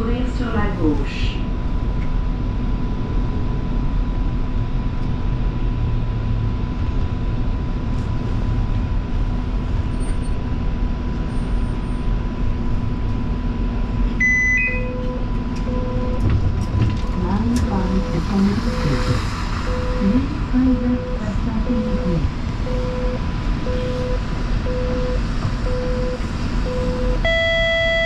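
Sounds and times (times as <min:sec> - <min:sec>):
low rumble and equipment hum: 0:00.0 - 0:28.0
electronic beep of stepped tones: 0:19.7 - 0:20.2, 0:20.8 - 0:28.0.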